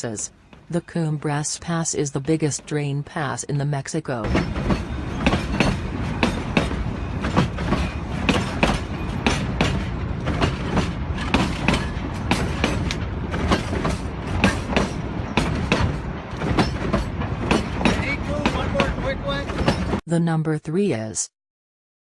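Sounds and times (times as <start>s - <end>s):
train rumbling on track: 4.2s - 20.0s
wheel clacks over rail joints: 4.3s - 20.0s.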